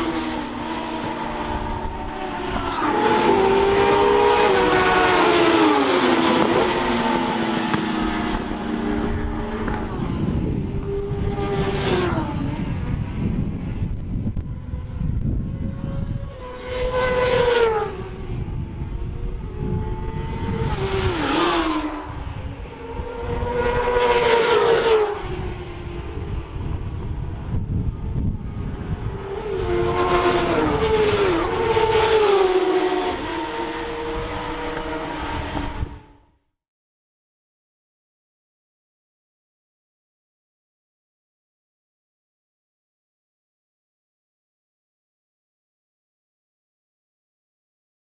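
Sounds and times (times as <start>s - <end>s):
racing motorcycles at high revs: 0.0s - 13.0s, 14.3s - 36.0s.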